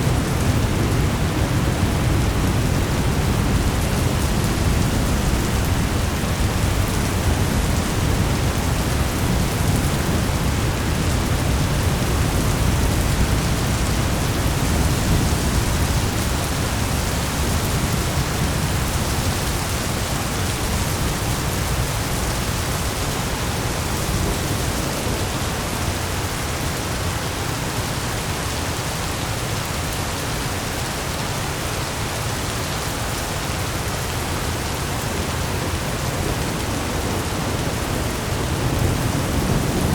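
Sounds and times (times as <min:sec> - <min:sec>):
rolling thunder rumble: 0:00.0 - 0:26.8, 0:35.0 - 0:39.9
rain hiss: 0:00.0 - 0:39.9.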